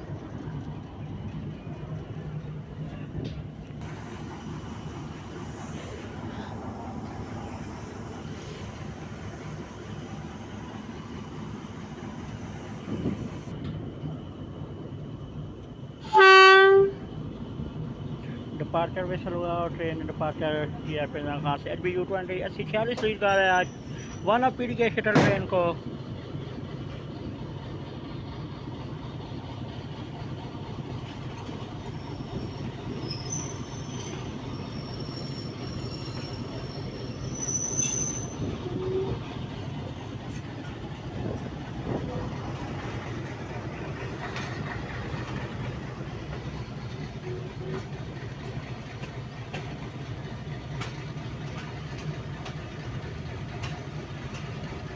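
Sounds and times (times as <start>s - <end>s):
diesel locomotive idling: 0.0s - 54.9s
train wheels rumbling on track: 0.0s - 54.9s
locomotive horn blast: 16.0s - 17.0s, 38.6s - 39.2s
high wheel squeals: 23.2s - 24.6s, 31.8s - 39.5s.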